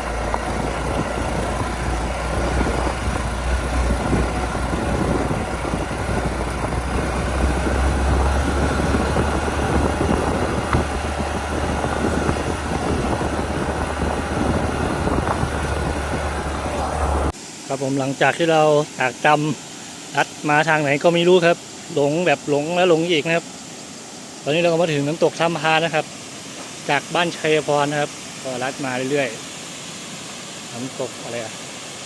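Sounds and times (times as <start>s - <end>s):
motorcycle engine rumble: 0.0s - 17.3s.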